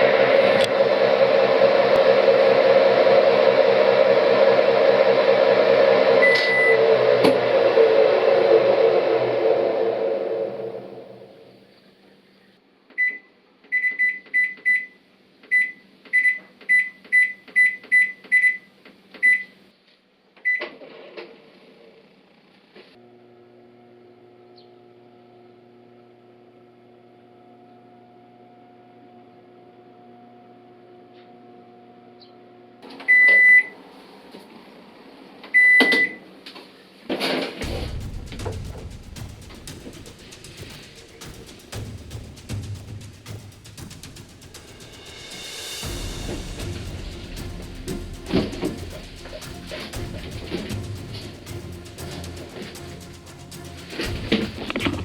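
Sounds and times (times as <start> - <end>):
washing machine beeps: 6.2 - 6.9, 13.0 - 19.6, 20.4 - 20.6, 33.1 - 33.8, 35.5 - 36.2
low rumble: 37.6 - 55.0.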